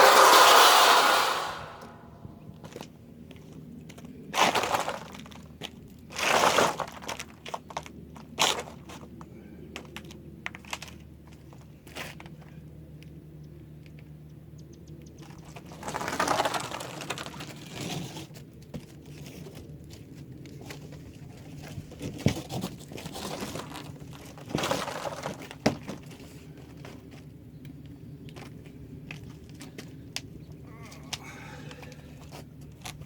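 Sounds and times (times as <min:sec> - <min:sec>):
rustling and crinkling: 0:02.6 - 0:12.5, 0:15.2 - 0:30.3.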